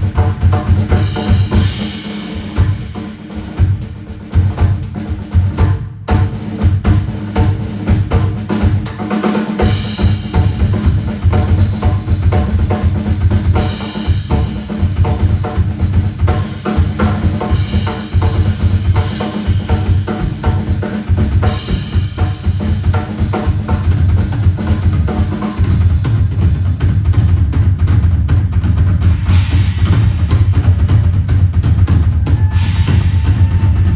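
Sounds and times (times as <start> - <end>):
cymbal crash: 0.0 - 4.9, 29.1 - 31.0, 32.4 - 33.9
bass drum and snare hits: 0.0 - 33.9.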